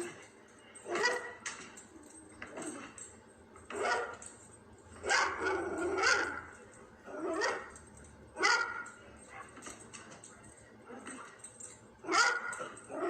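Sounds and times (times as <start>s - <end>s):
dog barking excitedly: 0.8s - 1.5s, 3.7s - 4.3s, 5.0s - 9.9s, 12.0s - 13.0s.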